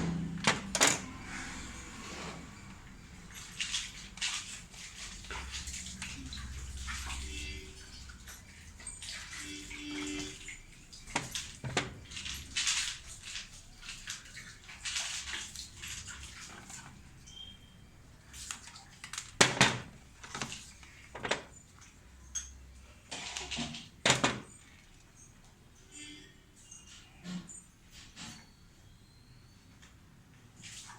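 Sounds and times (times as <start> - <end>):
water splashing: 0.0 - 22.0.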